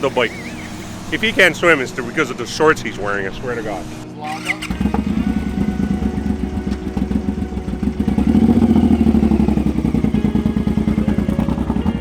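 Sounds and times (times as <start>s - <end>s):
motorcycle engine running: 4.3s - 12.0s.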